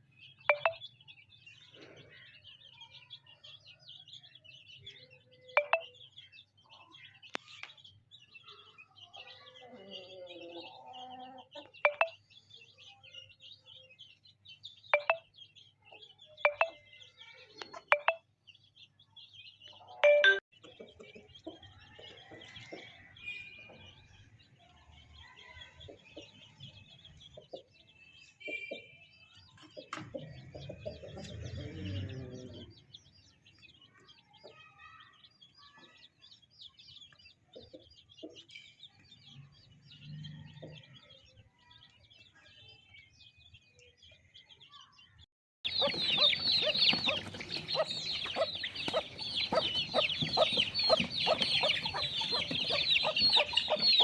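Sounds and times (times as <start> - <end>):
birds chirping: 0.0 - 24.6, 25.2 - 54.0.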